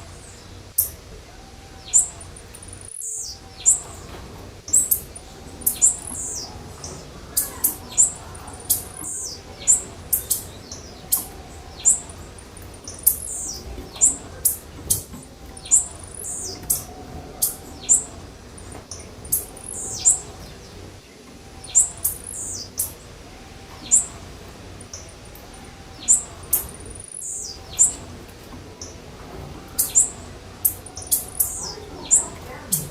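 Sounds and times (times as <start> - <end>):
high-pitched bird chirps: 1.8 - 3.9.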